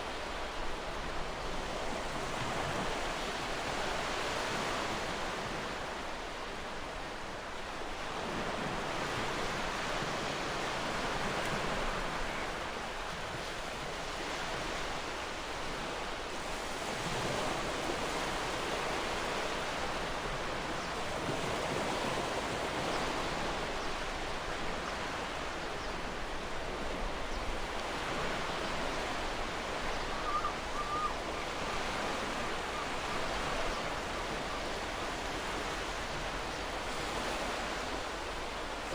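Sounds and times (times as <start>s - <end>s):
ocean waves washing ashore: 7.0s - 38.9s
faint bird chirp: 29.8s - 34.8s.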